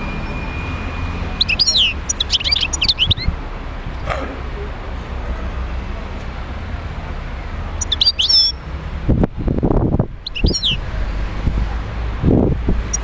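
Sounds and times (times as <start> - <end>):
goldfinch twittering: 1.3 - 3.4, 7.8 - 8.6, 10.2 - 10.8.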